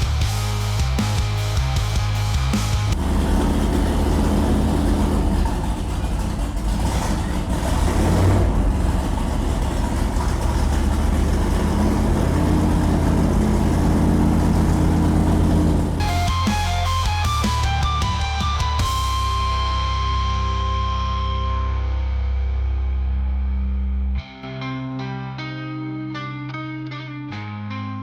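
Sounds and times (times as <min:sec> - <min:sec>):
car engine humming: 0:02.9 - 0:16.7.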